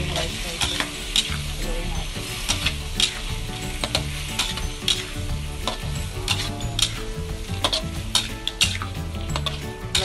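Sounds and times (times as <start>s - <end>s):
prawns sizzling in a wok: 0.0s - 10.0s
spatula scraping pan: 0.0s - 10.0s.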